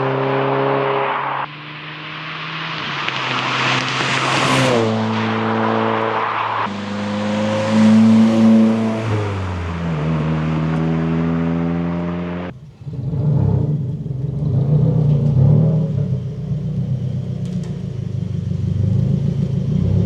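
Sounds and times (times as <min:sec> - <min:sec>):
low uneven exhaust rumble: 0:12.5 - 0:20.0.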